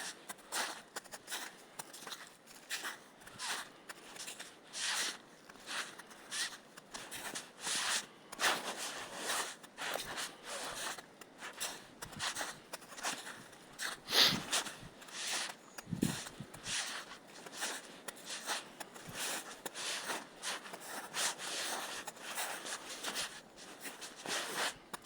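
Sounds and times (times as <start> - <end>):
footsteps on forest floor: 14.1 - 18.5.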